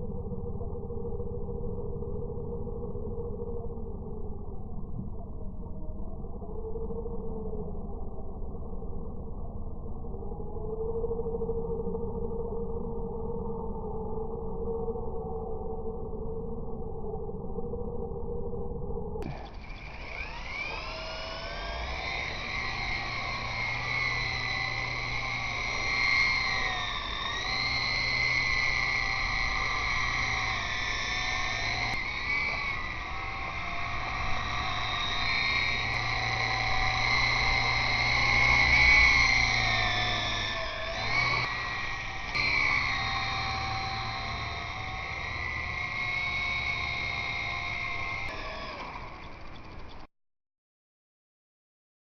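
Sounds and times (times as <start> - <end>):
rc helicopter rotors whining: 17.5 - 50.1.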